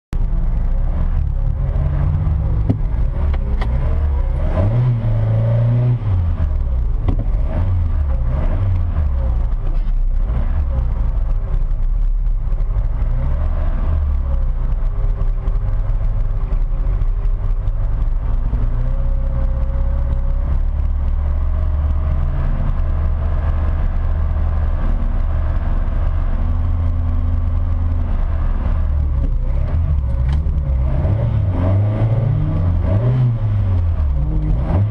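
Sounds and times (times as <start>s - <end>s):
sports car engine revving: 0.2s - 34.9s.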